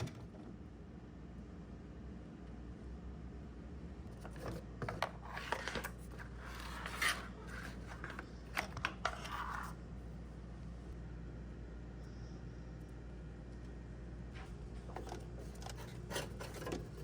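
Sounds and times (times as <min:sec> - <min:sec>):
low steady hum: 0:00.0 - 0:17.0
scraping handling noises: 0:04.1 - 0:09.9, 0:14.4 - 0:17.0.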